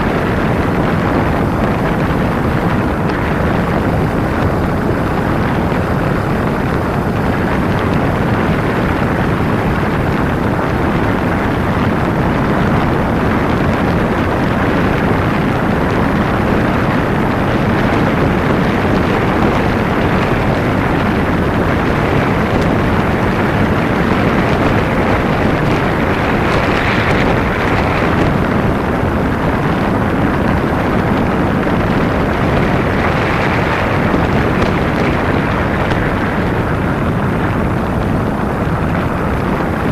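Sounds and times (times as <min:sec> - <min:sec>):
motorcycle engine: 0:00.0 - 0:39.9
wind rushing: 0:00.0 - 0:39.9.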